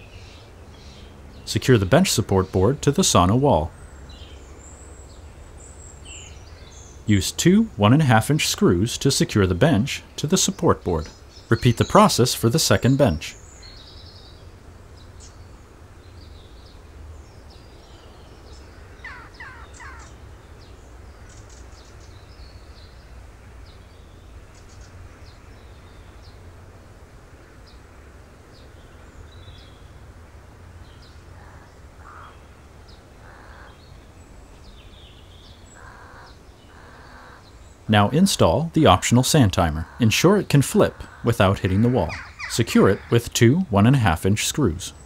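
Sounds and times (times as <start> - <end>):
birds chirping and calling: 0.0 - 26.5, 30.7 - 45.0
loud falling bird calls: 17.4 - 22.9, 30.9 - 34.0, 34.7 - 45.0.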